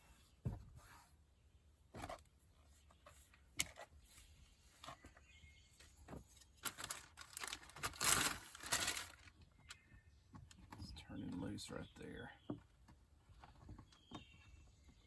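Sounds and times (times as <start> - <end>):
rustling: 1.9 - 9.7.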